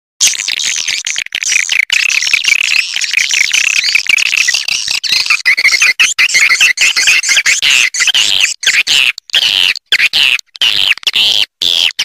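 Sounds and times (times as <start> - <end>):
swiftlets twittering: 0.2 - 8.6.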